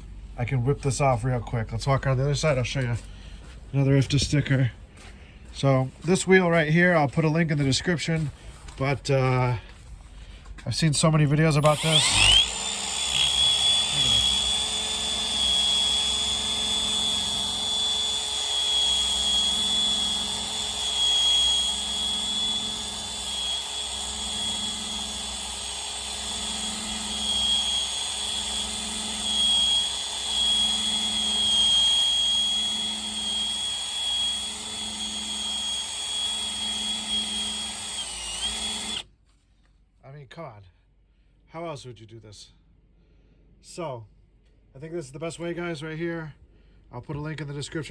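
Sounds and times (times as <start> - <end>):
electric drill whining: 11.2 - 39.1.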